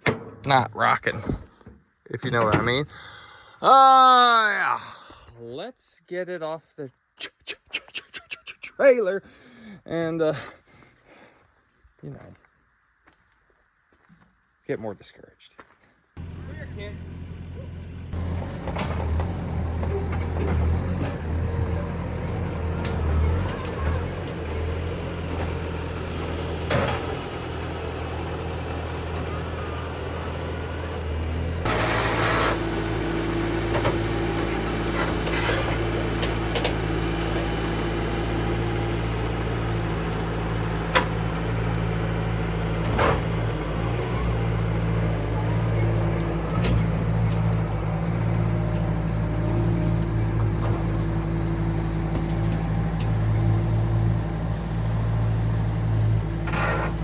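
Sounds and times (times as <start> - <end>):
clunks: 0.0 - 0.7, 1.3 - 2.8, 18.2 - 53.6
vehicle engine running: 16.2 - 57.0
steady whine: 31.5 - 37.4.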